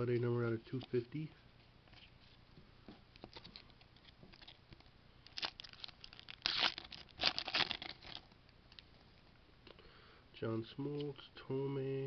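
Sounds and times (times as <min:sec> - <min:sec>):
foil wrapper tearing and crinkling: 0:05.2 - 0:08.3.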